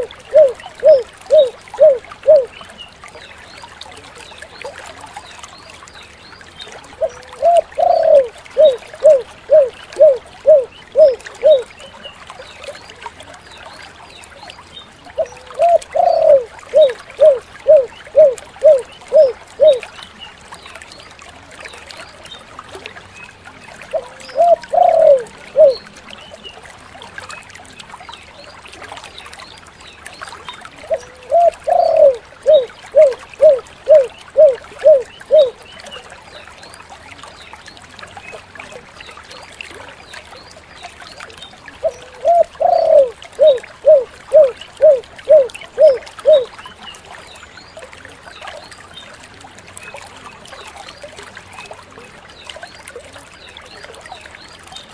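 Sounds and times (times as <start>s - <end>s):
dove cooing: 0.0s - 2.5s, 7.0s - 11.7s, 15.2s - 19.8s, 23.9s - 25.8s, 30.9s - 35.6s, 41.8s - 46.5s.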